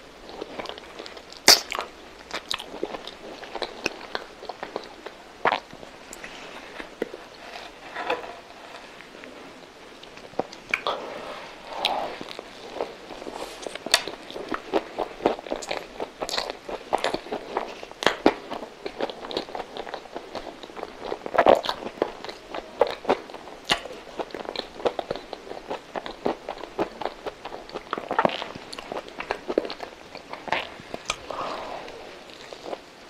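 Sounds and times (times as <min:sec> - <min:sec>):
biting and chewing food: 0:12.2 - 0:33.0.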